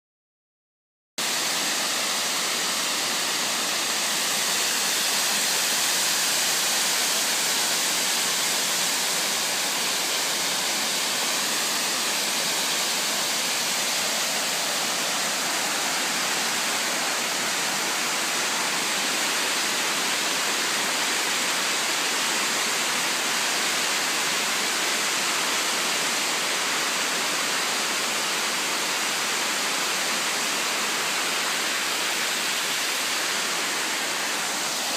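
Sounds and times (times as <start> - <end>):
waterfall pouring: 1.2 - 34.9.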